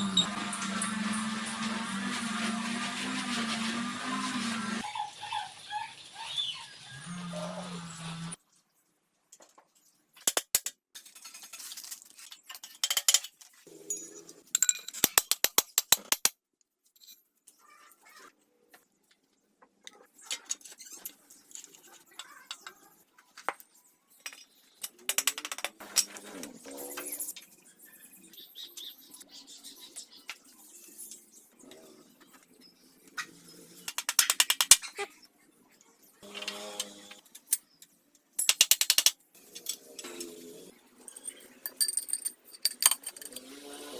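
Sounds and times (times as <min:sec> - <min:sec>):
metal tools knocking: 0:41.1 - 0:43.6.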